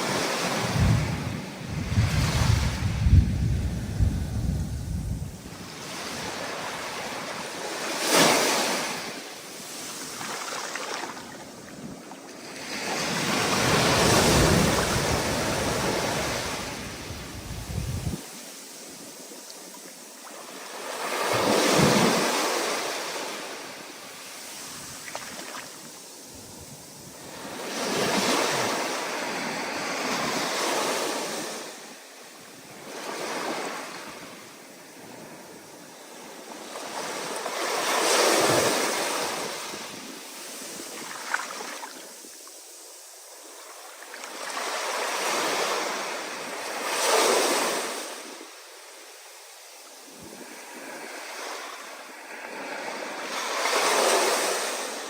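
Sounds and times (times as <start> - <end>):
waves breaking: 0.0 - 19.2.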